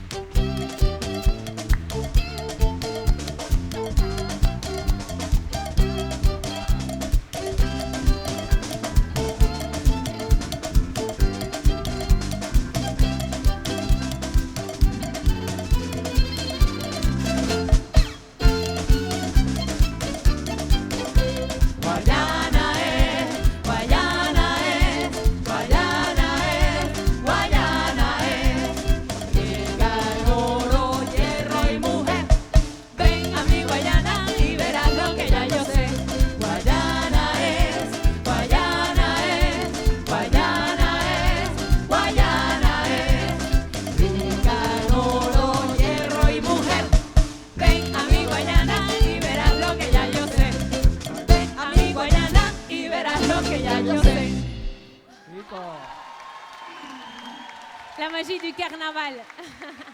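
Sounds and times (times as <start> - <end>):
percussion beat: 0.0 - 54.9
live band playing: 0.0 - 55.1
repeating bass line: 0.4 - 54.8
person singing: 21.4 - 54.8.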